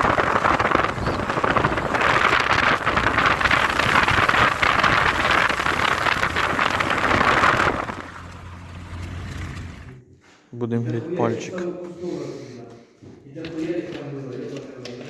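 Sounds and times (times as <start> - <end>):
car engine and road noise: 0.0 - 10.1.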